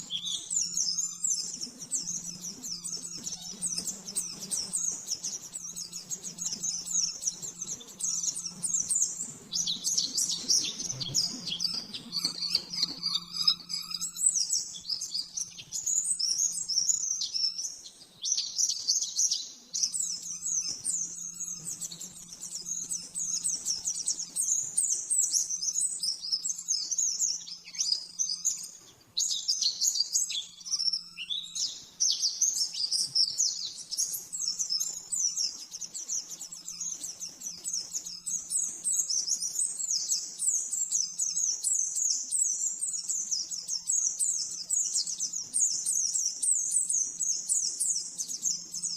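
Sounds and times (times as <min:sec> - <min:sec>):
faint low hum: 0:00.0 - 0:29.3
bird high twittering song: 0:00.0 - 0:48.9.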